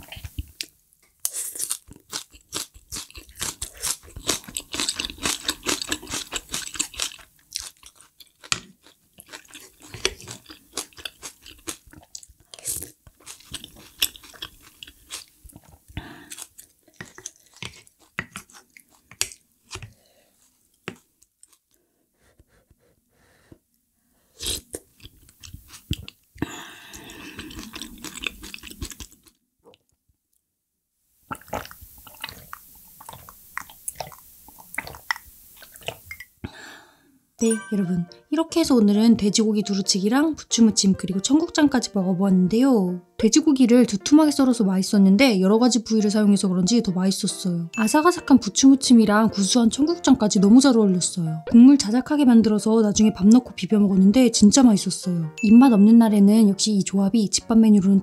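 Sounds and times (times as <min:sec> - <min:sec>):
person chewing crunchy food: 0:00.0 - 0:21.8, 0:24.3 - 0:29.9, 0:31.3 - 0:36.2.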